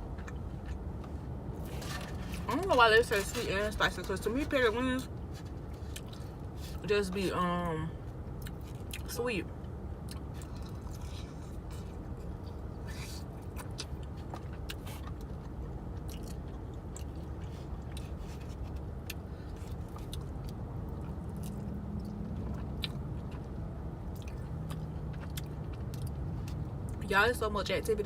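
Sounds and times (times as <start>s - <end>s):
low car rumble: 0.0s - 28.0s
chewing chicken wings: 10.1s - 23.5s, 24.1s - 26.6s.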